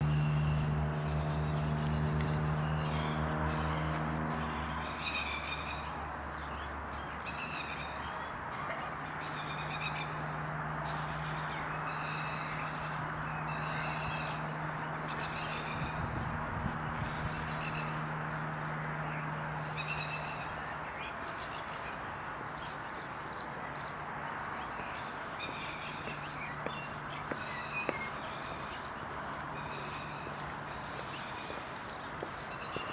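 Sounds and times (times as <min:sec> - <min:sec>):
birds chirping: 0:00.0 - 0:32.9.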